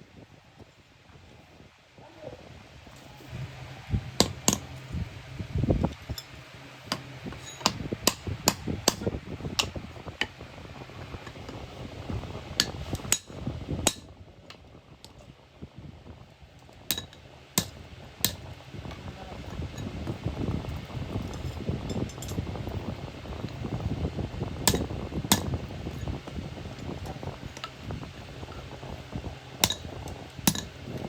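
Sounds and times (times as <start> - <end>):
low steady hum: 0.0 - 31.0
tools knocking on iron: 30.5 - 30.7.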